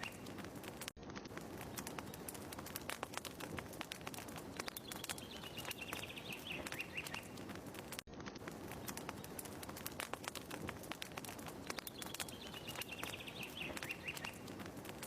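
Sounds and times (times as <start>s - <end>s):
bird chirping: 0.0s - 0.3s, 4.5s - 7.4s, 11.6s - 14.5s
wood fire crackling: 0.0s - 15.0s.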